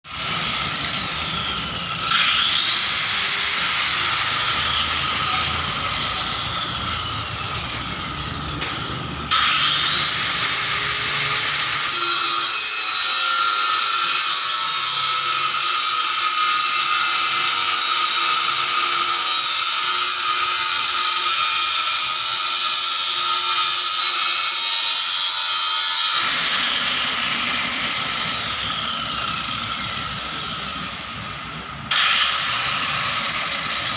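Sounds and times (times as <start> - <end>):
high-pitched electric power tool: 0.1 - 33.9.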